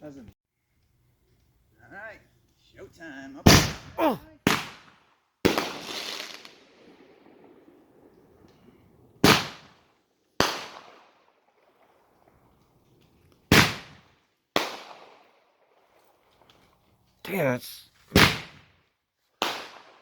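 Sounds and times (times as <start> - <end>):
fireworks bangs: 5.5 - 9.7.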